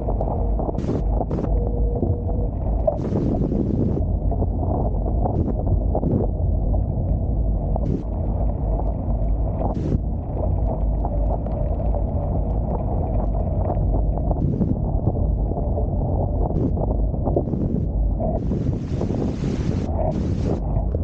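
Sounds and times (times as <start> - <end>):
water rushing along hulls: 0.0 - 21.0
wind buffeting microphone: 0.0 - 21.0.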